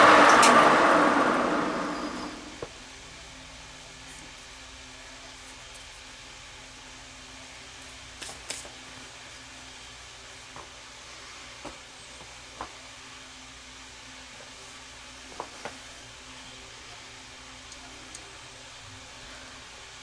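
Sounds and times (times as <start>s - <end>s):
machine tool humming: 0.0s - 2.6s.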